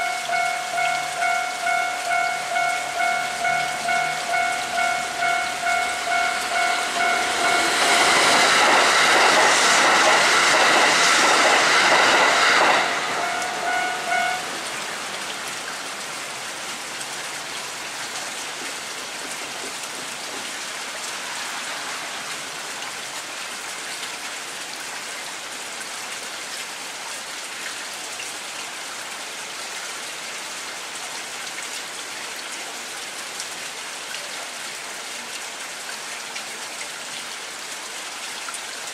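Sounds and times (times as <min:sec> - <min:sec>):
steady high tone: 0:00.0 - 0:14.8
electric train passing: 0:00.0 - 0:16.0, 0:21.2 - 0:22.4
heavy rain: 0:00.0 - 0:38.9.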